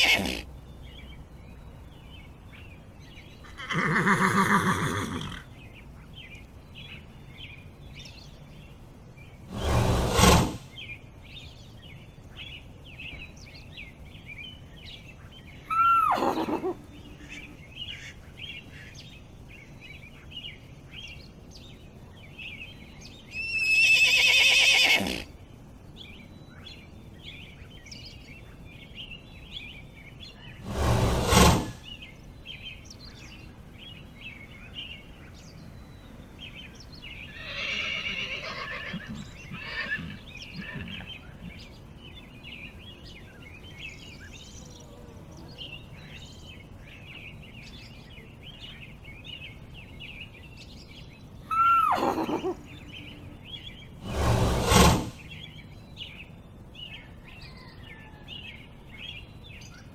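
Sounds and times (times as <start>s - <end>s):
horses whinnying: 0.0s - 0.4s, 3.5s - 5.5s, 15.7s - 16.8s, 23.4s - 25.3s, 37.4s - 41.1s, 51.5s - 52.6s
birds chirping: 0.0s - 59.9s.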